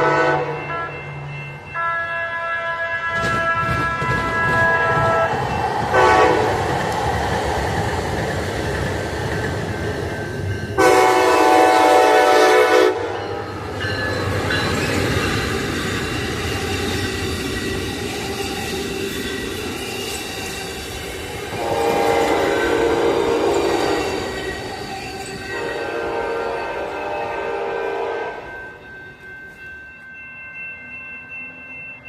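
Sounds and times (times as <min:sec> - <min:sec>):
train horn blasts: 0:00.0 - 0:01.1, 0:01.8 - 0:06.6, 0:10.8 - 0:13.4, 0:21.5 - 0:24.3, 0:25.5 - 0:28.8
train wheels rumbling on rails: 0:02.8 - 0:30.1.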